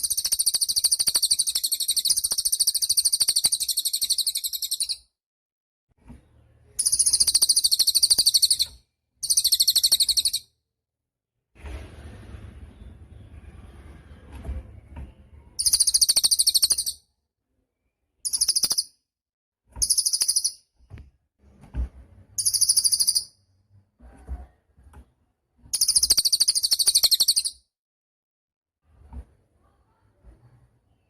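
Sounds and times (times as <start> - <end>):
bird singing high fast trills: 6.8 - 10.4, 15.6 - 17.0, 18.3 - 18.9, 19.8 - 20.6, 22.4 - 23.3, 25.8 - 27.6.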